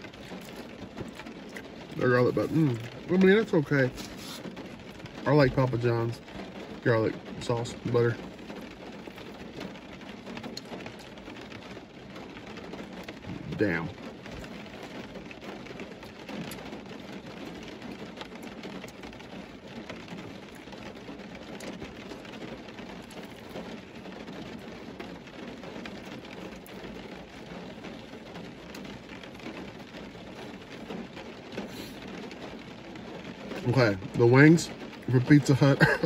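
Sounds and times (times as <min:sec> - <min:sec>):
rain on car roof: 0:00.0 - 0:36.0
man chewing food: 0:00.1 - 0:01.8.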